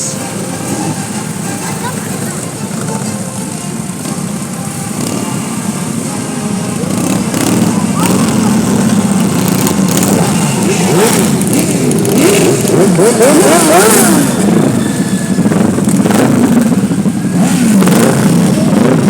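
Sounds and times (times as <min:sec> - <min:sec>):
motorcycles revving past: 0:06.8 - 0:19.0.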